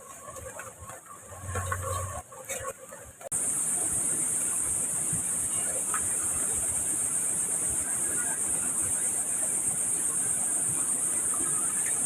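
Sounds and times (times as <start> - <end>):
high-pitched insect chorus: 3.3 - 12.0.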